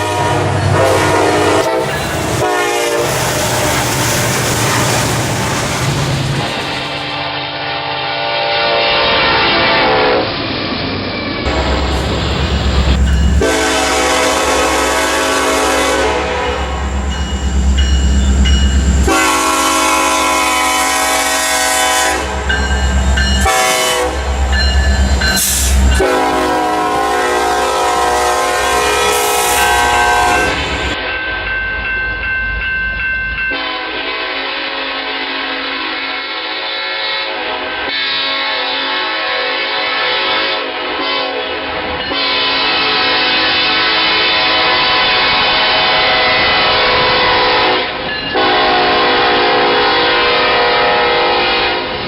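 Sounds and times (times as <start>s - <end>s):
locomotive air horn blasts: 0.0s - 3.8s, 7.2s - 10.3s, 12.9s - 17.0s, 19.0s - 22.5s, 23.4s - 24.4s, 25.4s - 31.1s, 33.5s - 52.0s
train rumbling: 0.0s - 36.5s, 37.3s - 52.0s.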